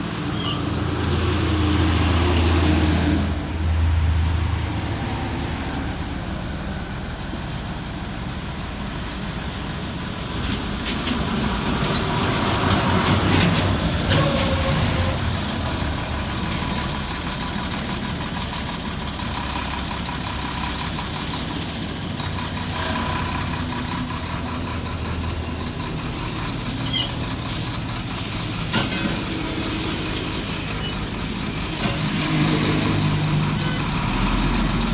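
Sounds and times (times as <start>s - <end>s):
diesel earthmoving machinery running: 3.3s - 34.9s.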